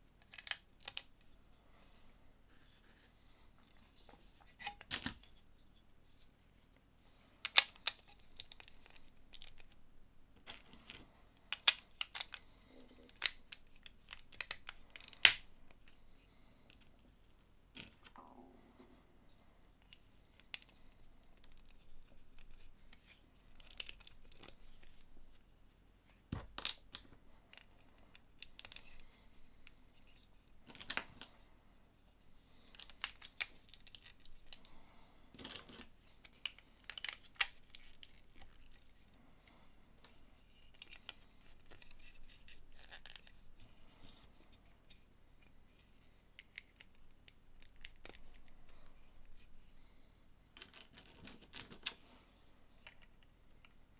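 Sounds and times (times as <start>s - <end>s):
plastic bricks clicking together: 10.5s - 12.4s, 13.1s - 15.5s.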